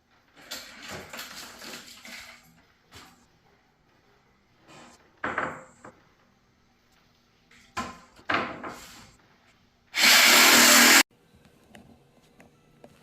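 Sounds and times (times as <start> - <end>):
jigsaw motor running: 10.0 - 11.0.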